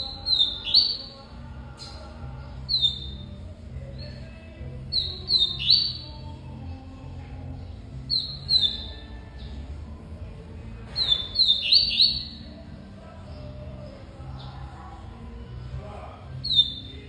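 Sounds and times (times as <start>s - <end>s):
bird chirping: 0.0s - 6.8s, 7.4s - 9.7s, 10.8s - 12.6s, 16.3s - 17.0s.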